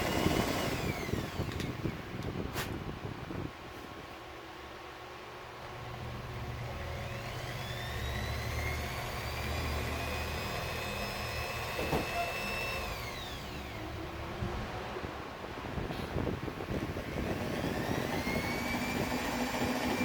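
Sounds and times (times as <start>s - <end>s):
small electric motor whining: 0.0s - 2.0s, 6.4s - 14.0s, 16.8s - 20.0s.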